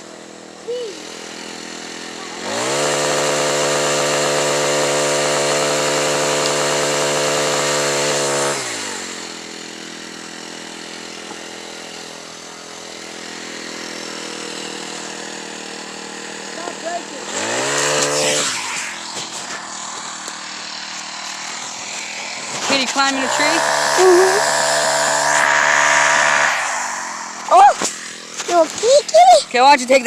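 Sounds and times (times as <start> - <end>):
small engine idling and revving: 0.0 - 30.0.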